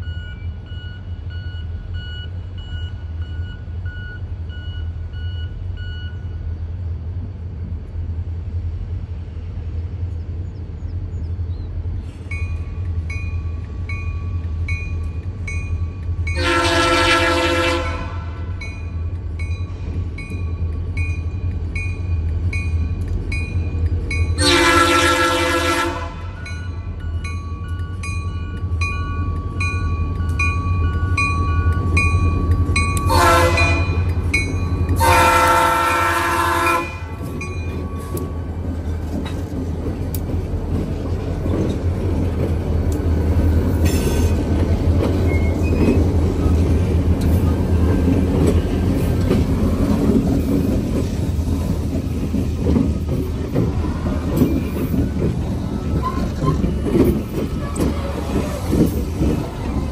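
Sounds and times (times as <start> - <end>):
diesel locomotive engine drone: 0.0 - 59.9
wheels rumbling on rail: 0.0 - 59.9
locomotive bell dinging: 12.3 - 39.5
locomotive horn: 16.4 - 18.6, 24.4 - 26.4, 33.0 - 34.0, 35.0 - 37.3.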